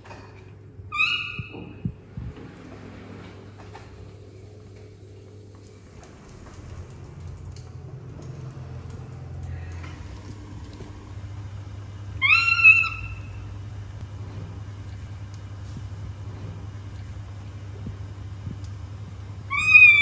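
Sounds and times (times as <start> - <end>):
faint macaque call: 0.9 - 1.8, 12.2 - 13.4, 19.5 - 20.0
macaque high call: 0.9 - 1.8, 12.2 - 13.5, 19.5 - 20.0.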